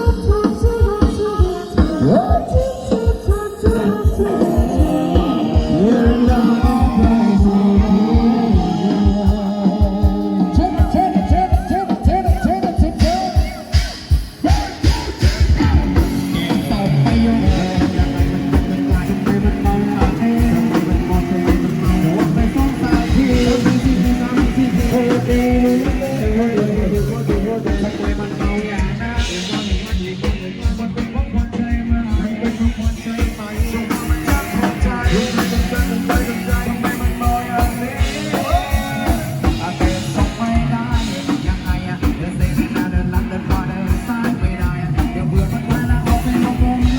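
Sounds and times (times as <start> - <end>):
fast drum beat: 0.0 - 46.9
person singing: 0.0 - 46.9
procession band music: 0.0 - 46.9.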